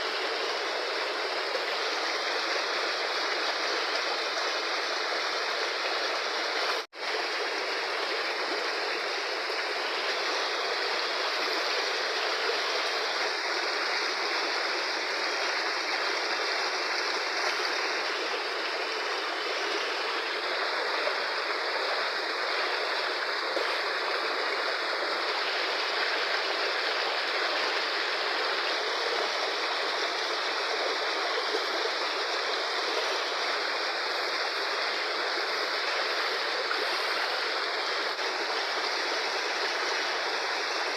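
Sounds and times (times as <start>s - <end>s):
river rushing: 0.0s - 40.9s.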